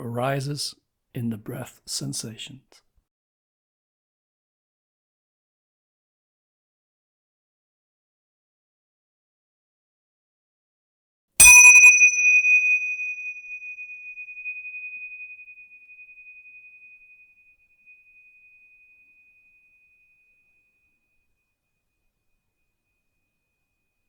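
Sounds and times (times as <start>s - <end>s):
meditation bell ringing: 11.4s - 20.9s.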